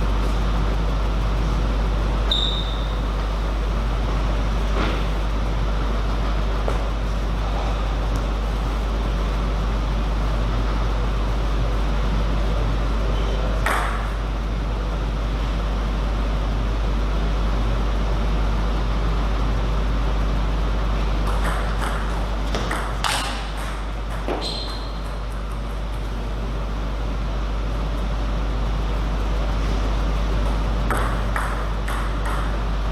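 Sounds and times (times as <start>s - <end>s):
low hum and hall noise: 0.0s - 32.9s
table tennis ball clicks: 30.4s - 32.6s.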